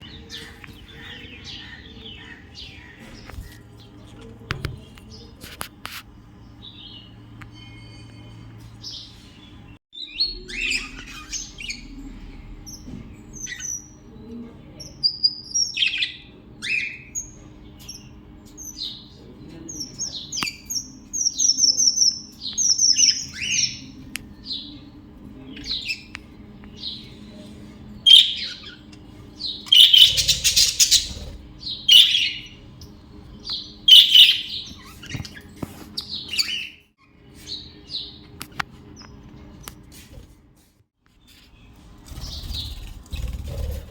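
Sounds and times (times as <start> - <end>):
budgerigars chirping and squawking: 0.0 - 3.6, 10.3 - 14.0, 28.1 - 32.9, 33.5 - 36.8.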